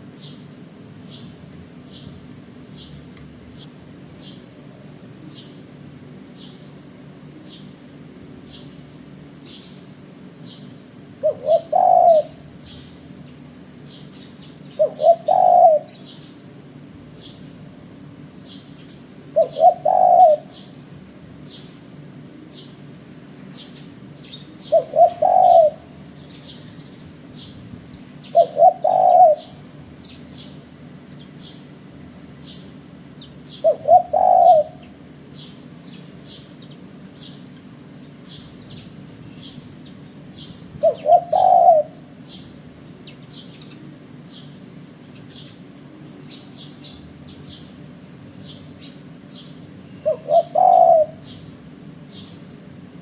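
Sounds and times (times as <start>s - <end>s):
small birds chirping: 0.0s - 52.9s
dove cooing: 10.5s - 13.1s, 13.9s - 16.4s, 19.2s - 20.8s, 23.6s - 30.6s, 32.4s - 35.6s, 40.4s - 42.6s, 48.8s - 51.6s.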